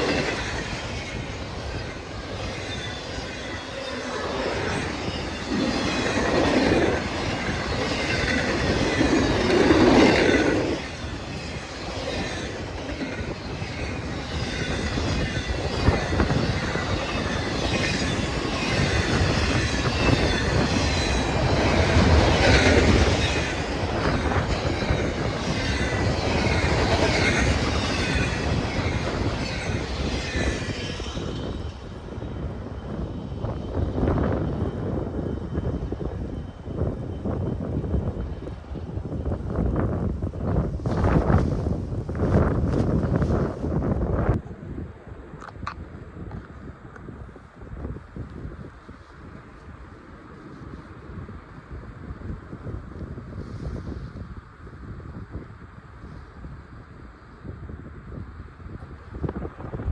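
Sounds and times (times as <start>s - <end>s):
train wheels squealing: 0.0s - 41.8s.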